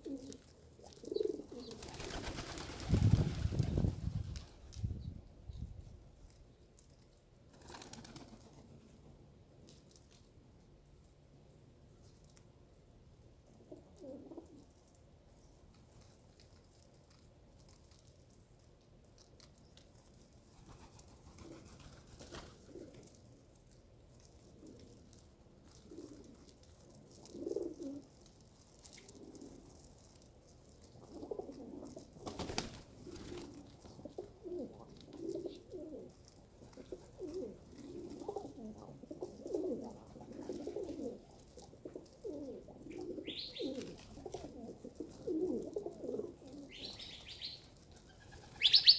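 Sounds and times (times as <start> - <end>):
pigeons cooing: 0.0 - 3.9, 27.2 - 28.1, 31.0 - 48.9.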